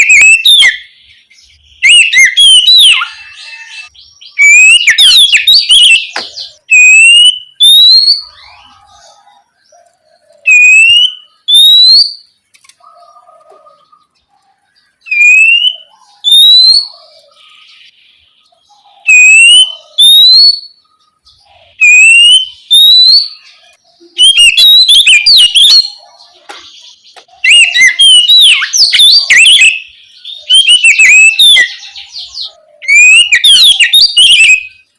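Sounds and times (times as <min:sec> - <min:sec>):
bird singing whistles: 0:00.0 - 0:12.3, 0:15.0 - 0:18.0, 0:18.6 - 0:26.2, 0:27.4 - 0:34.9.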